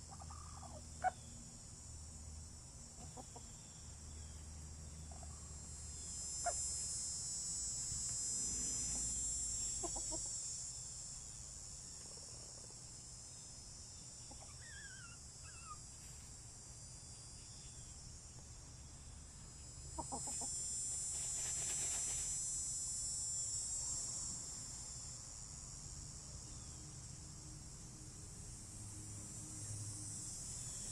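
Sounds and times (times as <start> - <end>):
high insect buzz: 0.0 - 30.9
hens clucking: 3.0 - 3.6, 9.8 - 10.3, 20.0 - 20.5.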